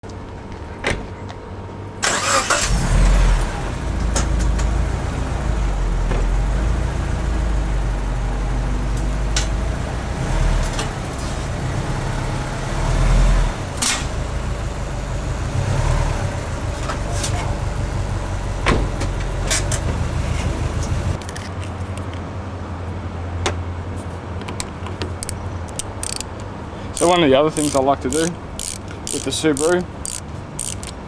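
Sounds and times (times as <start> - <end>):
car engine starting and idling: 2.0 - 21.2
clicks: 27.0 - 31.0.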